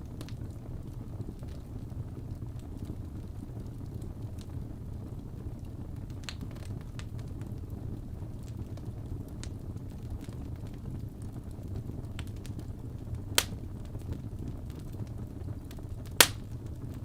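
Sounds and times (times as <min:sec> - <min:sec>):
fire burning: 0:00.0 - 0:17.0
fire crackles and pops: 0:00.0 - 0:17.0.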